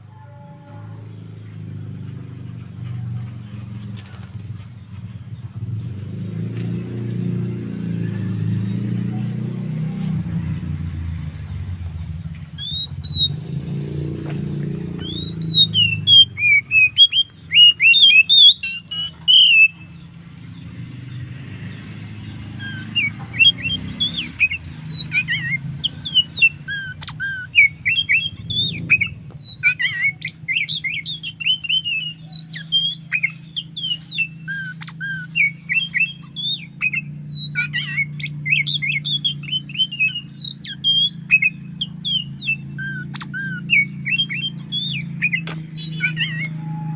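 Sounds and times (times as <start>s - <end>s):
magpie-robin singing: 12.0s - 46.9s.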